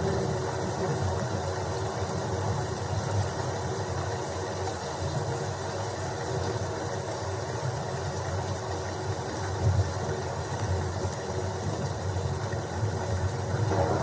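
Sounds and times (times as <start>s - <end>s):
low continuous rumble: 0.0s - 14.0s
steady rain falling: 0.0s - 14.0s.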